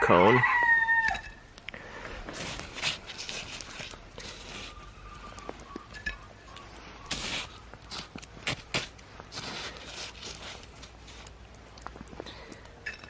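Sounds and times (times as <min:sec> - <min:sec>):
footsteps crunching in snow: 0:02.3 - 0:05.6, 0:07.0 - 0:12.0.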